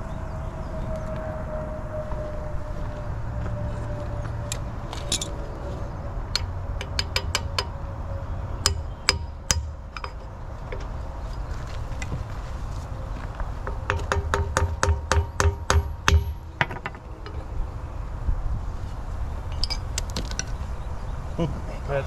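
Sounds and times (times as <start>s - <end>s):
hammer tapping steel parts: 6.4s - 7.8s, 8.7s - 10.9s, 13.7s - 17.4s.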